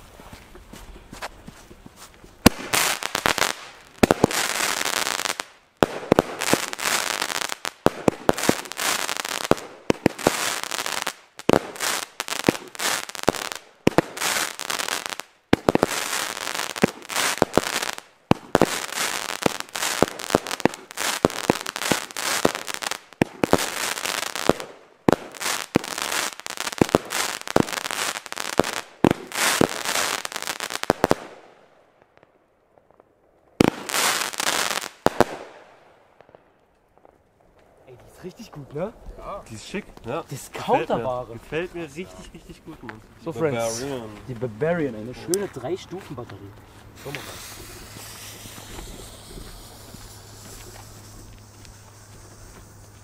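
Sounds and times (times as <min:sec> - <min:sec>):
crackle of bursting fireworks: 0:02.3 - 0:43.0, 0:43.6 - 0:53.0
fireworks launching and banging: 0:02.4 - 0:31.6, 0:33.5 - 0:36.4, 0:47.0 - 0:53.0.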